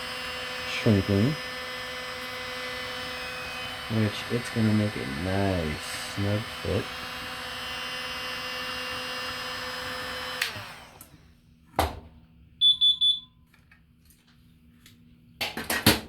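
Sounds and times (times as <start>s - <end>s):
heat gun whirring hiss: 0.0s - 11.1s.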